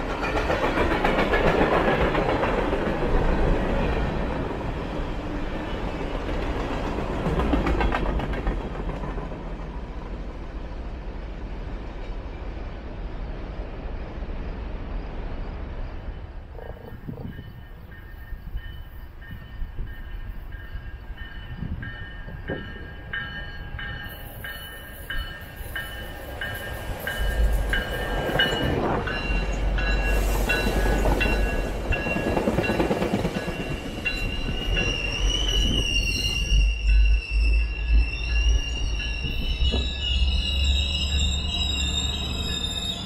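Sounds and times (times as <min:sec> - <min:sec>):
train rumbling past: 0:00.0 - 0:43.0
steel wheels squealing: 0:16.1 - 0:43.0.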